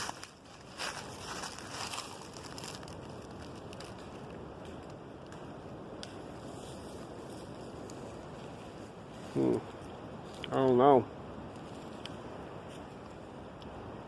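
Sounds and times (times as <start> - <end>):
crunching in dry leaves: 0.0 - 5.0, 6.2 - 10.7, 11.5 - 13.0.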